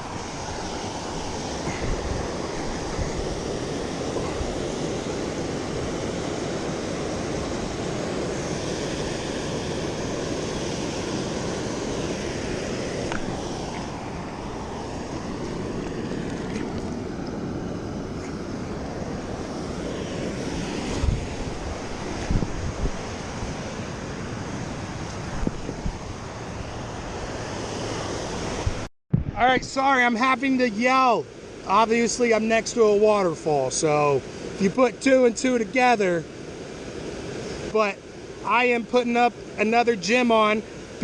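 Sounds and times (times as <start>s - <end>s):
waterfall roaring: 0.0s - 28.8s
low thumps: 28.7s - 29.4s.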